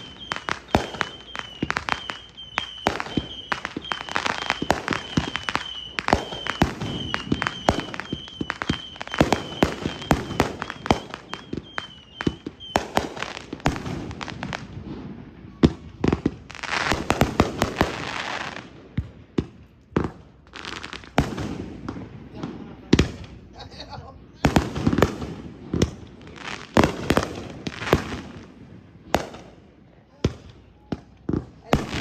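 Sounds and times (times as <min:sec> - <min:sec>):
hissing crackle: 0:00.0 - 0:14.9
fireworks bangs: 0:00.0 - 0:32.0.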